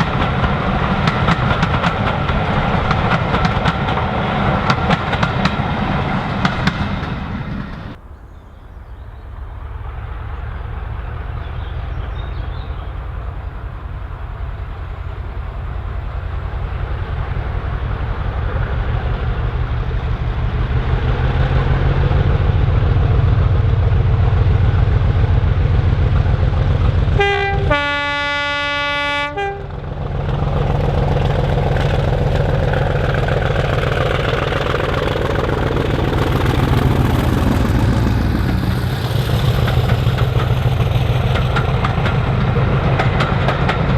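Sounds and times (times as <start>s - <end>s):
diesel locomotive engine: 0.0s - 43.9s
locomotive horn: 27.1s - 29.8s.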